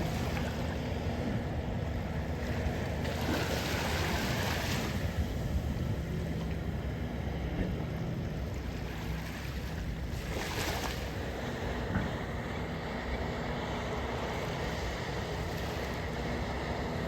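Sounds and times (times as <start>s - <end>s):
wind rumble on microphone: 0.0s - 17.0s
surf washing onto beach: 2.9s - 5.8s.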